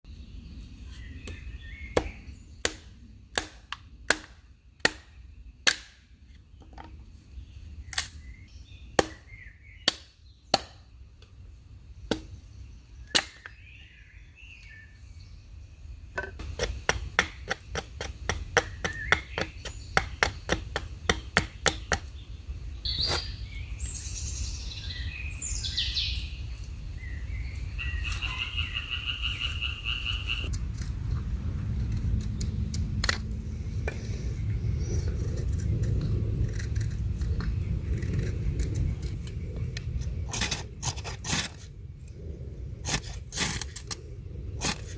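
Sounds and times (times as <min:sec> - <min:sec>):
birds chirping: 0:00.1 - 0:03.1, 0:06.3 - 0:30.5.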